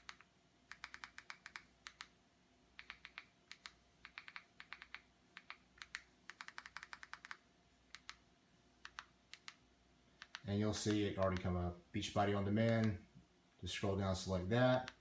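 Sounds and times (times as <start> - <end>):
remote control buttons clicking: 0.0 - 2.2, 2.8 - 8.2, 8.8 - 9.6, 10.2 - 11.6, 12.6 - 13.0, 14.7 - 15.0.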